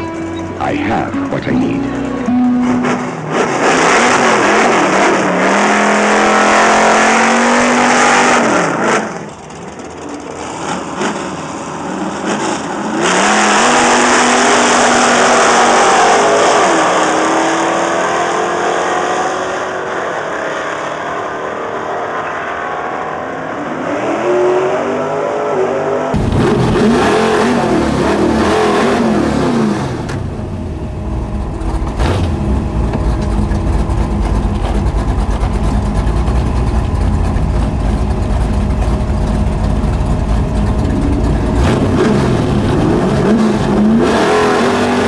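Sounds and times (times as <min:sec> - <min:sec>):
car engine revving hard: 0:02.3 - 0:09.3, 0:10.4 - 0:30.6, 0:40.7 - 0:45.0.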